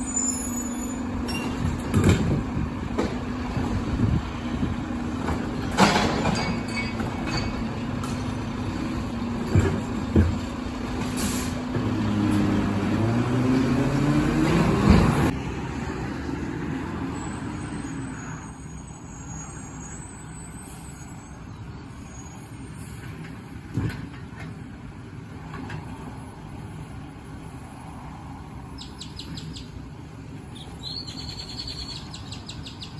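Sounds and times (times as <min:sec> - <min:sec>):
garbage truck engine: 0:00.0 - 0:18.1
clunks: 0:01.2 - 0:04.2, 0:05.2 - 0:12.8
air brake hiss: 0:11.2 - 0:11.6.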